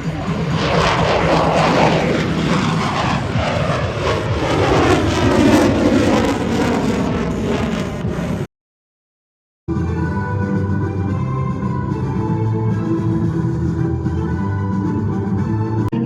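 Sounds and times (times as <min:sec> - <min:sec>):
fighter jet flying past: 0:00.0 - 0:08.5.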